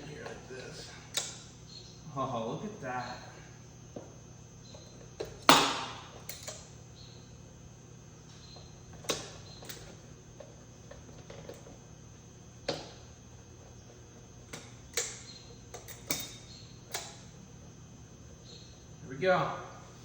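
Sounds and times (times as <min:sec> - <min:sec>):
low steady hum: 0:00.0 - 0:20.0
clicks and knocks of tools handled: 0:04.7 - 0:06.7, 0:14.4 - 0:17.3.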